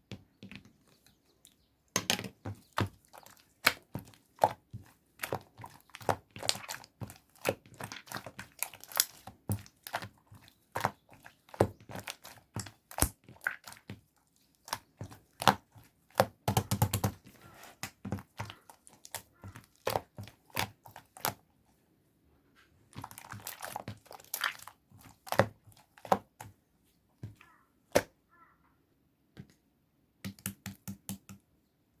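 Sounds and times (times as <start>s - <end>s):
clay slime crackling pops: 6.0s - 14.0s, 14.6s - 17.2s.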